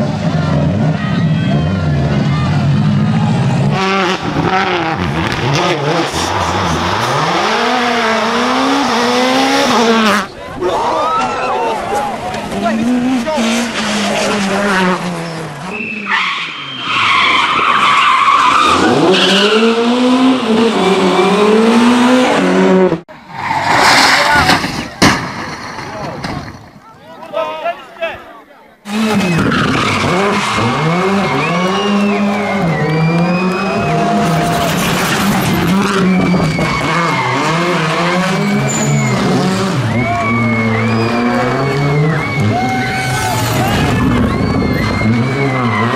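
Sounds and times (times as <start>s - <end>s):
rally car engine revving: 0.0s - 10.3s, 12.0s - 25.8s, 28.8s - 45.9s
tyres squealing: 28.9s - 45.9s.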